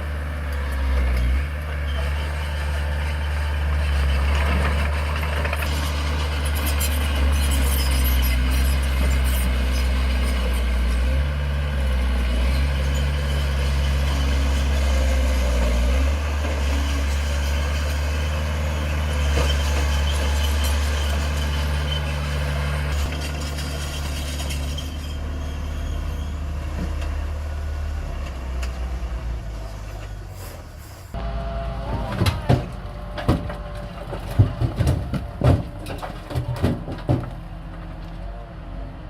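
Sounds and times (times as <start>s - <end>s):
heavy diesel engine humming: 0.0s - 39.0s.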